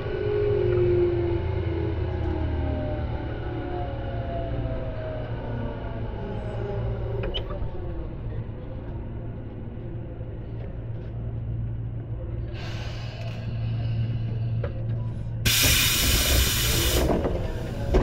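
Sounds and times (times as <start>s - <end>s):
train running gear hum: 0.0s - 18.0s
compressed air hiss: 15.5s - 17.2s.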